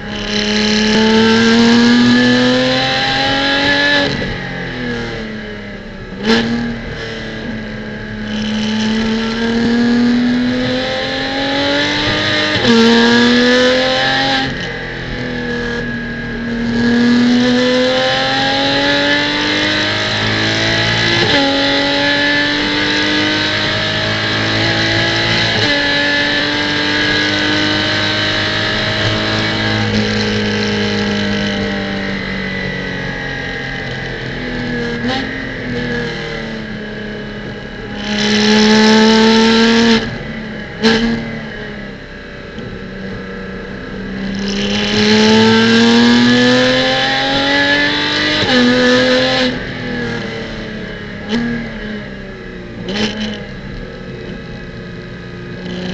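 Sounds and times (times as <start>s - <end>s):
car engine accelerating: 0.0s - 55.9s
sharp gear upshifts: 44.2s - 50.6s, 52.8s - 54.8s.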